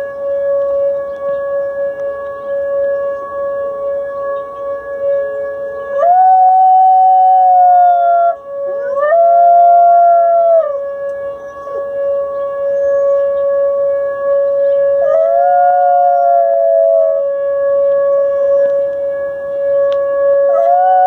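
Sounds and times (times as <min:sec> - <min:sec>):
steady ringing tone: 0:00.0 - 0:21.0
dog howling: 0:05.8 - 0:12.0, 0:14.6 - 0:18.8, 0:20.3 - 0:21.0.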